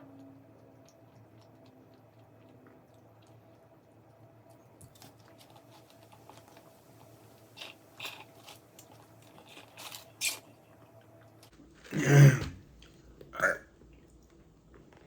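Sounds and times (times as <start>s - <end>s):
person chewing crunchy food: 0.2s - 12.0s.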